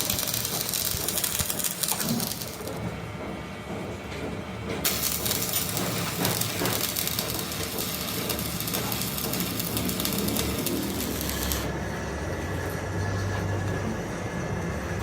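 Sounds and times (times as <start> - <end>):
crackling hissing metal cutting: 0.0 - 2.7, 4.9 - 11.7
machine rumble: 0.0 - 15.0.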